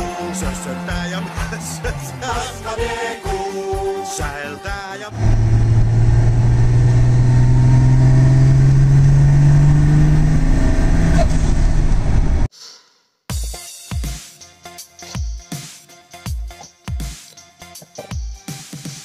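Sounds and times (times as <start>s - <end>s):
car engine under load: 5.1s - 12.5s.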